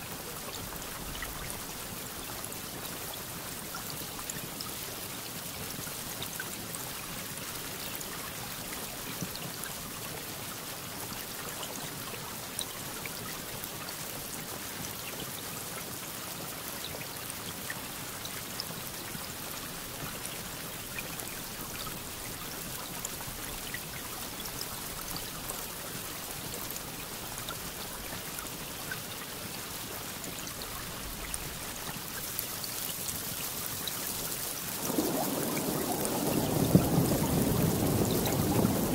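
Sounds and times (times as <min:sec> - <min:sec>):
steady rain falling: 0:00.0 - 0:38.9
raindrop ticks: 0:30.2 - 0:38.9.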